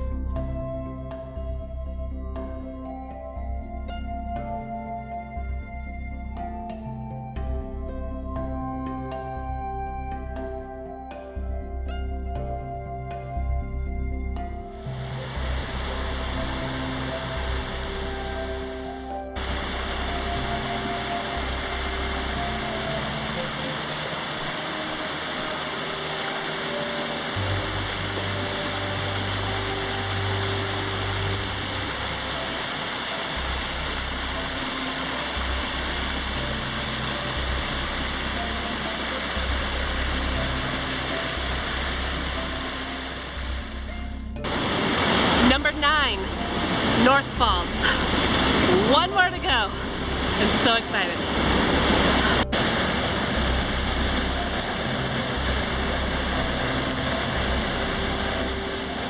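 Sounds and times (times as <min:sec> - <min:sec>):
soft slow background music: 0:00.0 - 0:59.0
waterfall rushing: 0:14.7 - 0:59.0.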